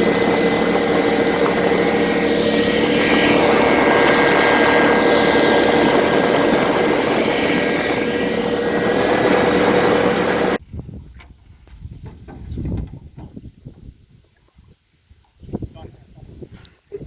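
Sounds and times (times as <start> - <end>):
engine running with whine: 0.0 - 10.6.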